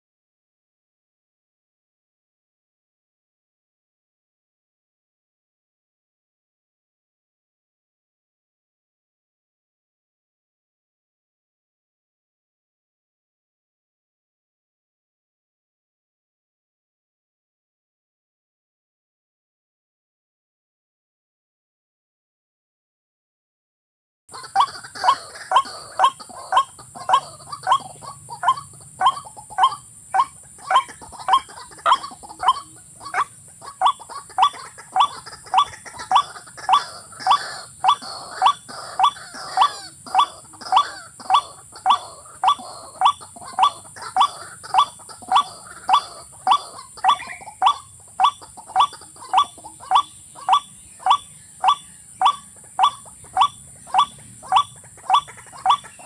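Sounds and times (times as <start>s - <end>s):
rail bird calls: 24.3s - 56.0s.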